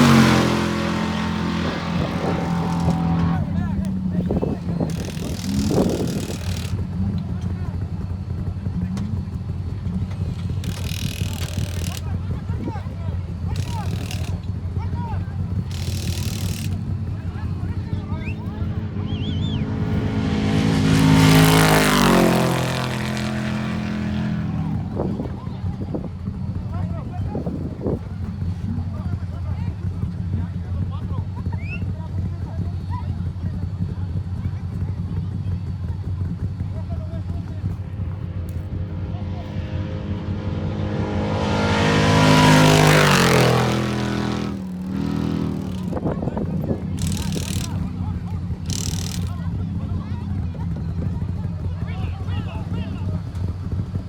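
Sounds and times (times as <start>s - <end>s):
race vehicle engine passing by: 0.0s - 12.7s, 15.5s - 28.0s, 36.3s - 53.2s.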